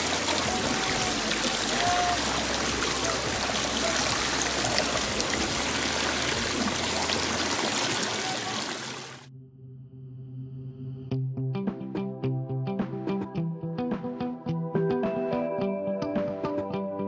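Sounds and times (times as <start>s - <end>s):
waterfall splashing: 0.0s - 9.3s.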